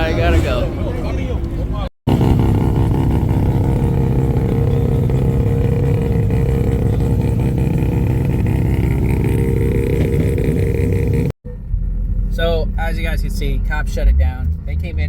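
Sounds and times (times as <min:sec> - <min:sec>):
car engine running steadily: 0:00.5 - 0:15.0.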